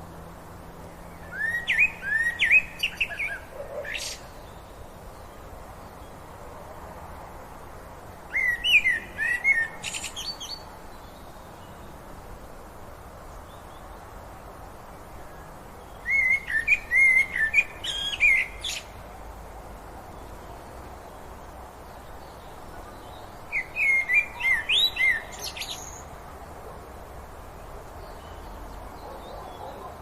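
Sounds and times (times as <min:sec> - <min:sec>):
background hiss: 0:00.0 - 0:30.0
songbird whistling: 0:01.2 - 0:04.2, 0:08.3 - 0:10.6, 0:16.0 - 0:18.9, 0:23.5 - 0:26.1.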